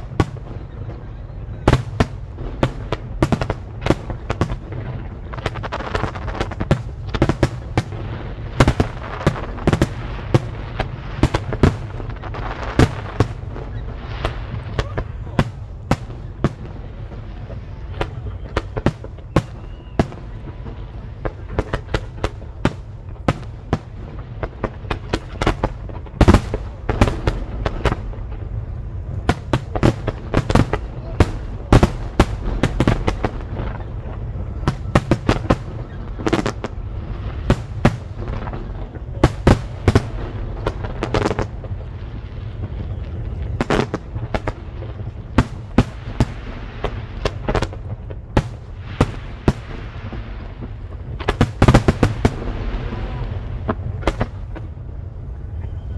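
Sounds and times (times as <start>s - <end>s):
fireworks bursting: 0.0s - 55.9s.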